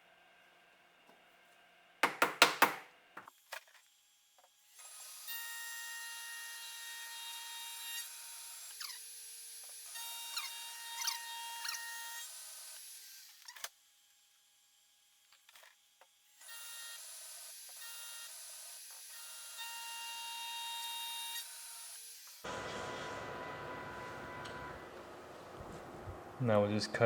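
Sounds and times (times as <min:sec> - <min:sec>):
loud knocks: 0:02.0 - 0:02.9.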